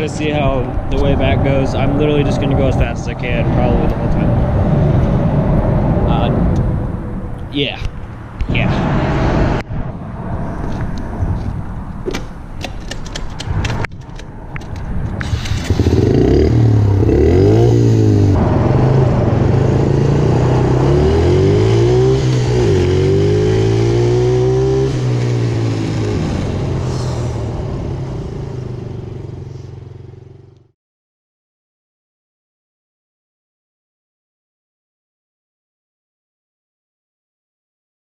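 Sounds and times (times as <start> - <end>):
rattling and sharp clicks: 12.1 - 16.0
motorbike engine revving: 15.2 - 30.4.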